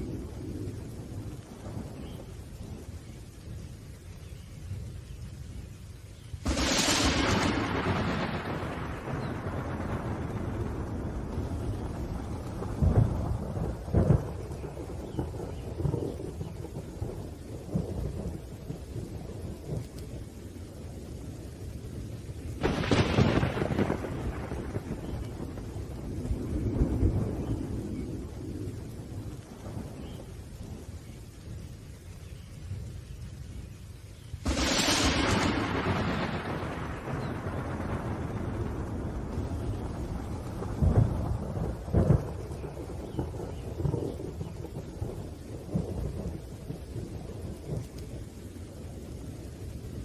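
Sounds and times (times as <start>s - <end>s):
thunder rumbling: 0.0s - 3.9s, 6.4s - 50.0s
steady rain: 0.0s - 50.0s
sharp thunder peal: 6.4s - 16.4s, 22.6s - 25.8s, 34.4s - 47.9s.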